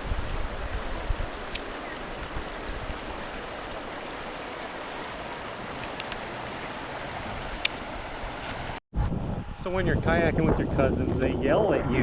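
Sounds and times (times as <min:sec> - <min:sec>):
river water flowing over rocks: 0:00.0 - 0:08.8.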